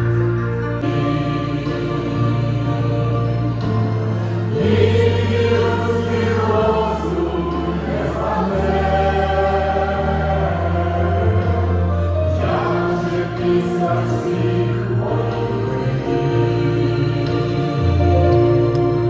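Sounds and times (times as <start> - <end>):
choir holding long chords: 0.0 - 19.0
deep bass line: 0.0 - 19.0.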